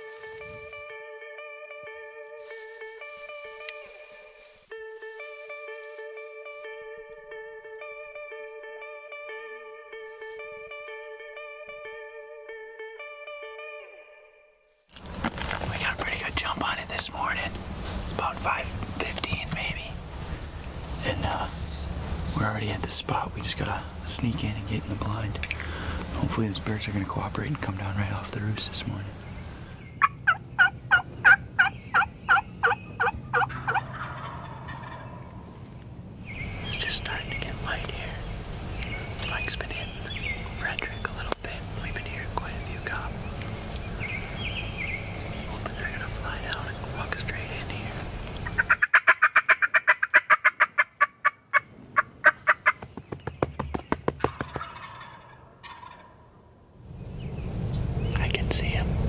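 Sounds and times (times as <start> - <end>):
turkey yelping: 30.0 - 35.4, 48.4 - 52.8, 54.2 - 56.3.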